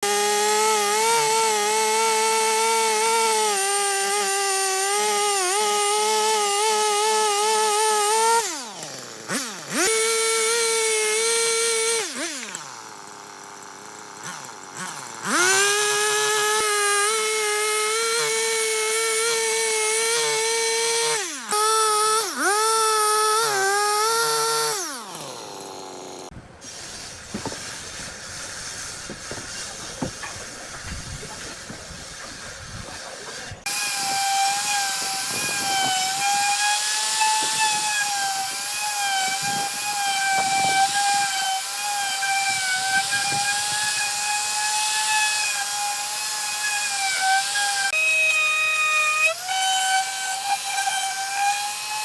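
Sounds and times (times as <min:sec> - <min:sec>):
power tool motor whirring: 0:00.0 - 0:52.0.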